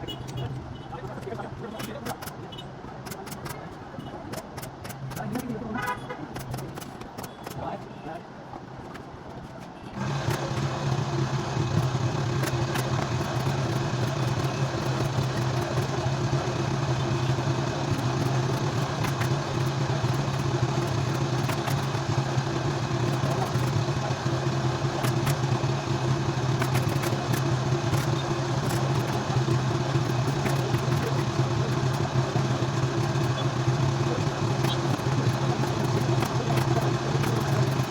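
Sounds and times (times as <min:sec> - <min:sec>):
motor running with low drone: 0:10.0 - 0:37.9.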